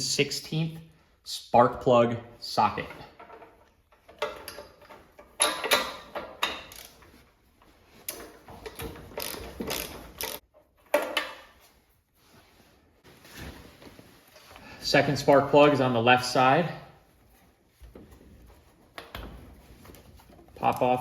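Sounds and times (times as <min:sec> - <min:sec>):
ratchet wrench clicking: 0:06.7 - 0:07.0, 0:09.2 - 0:10.4.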